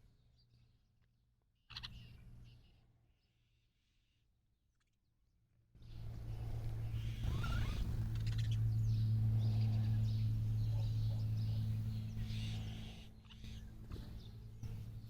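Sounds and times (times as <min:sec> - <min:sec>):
small birds chirping: 0:01.7 - 0:03.7, 0:05.8 - 0:15.0
steady low hum: 0:05.8 - 0:15.0.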